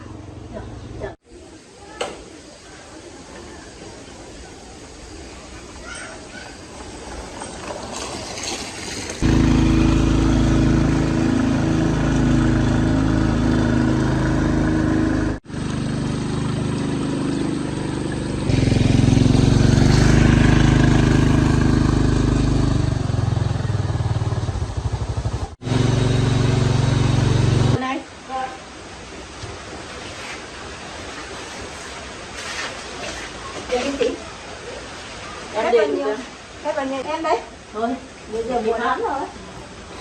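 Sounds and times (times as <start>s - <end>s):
motorcycle engine running: 9.2s - 27.8s.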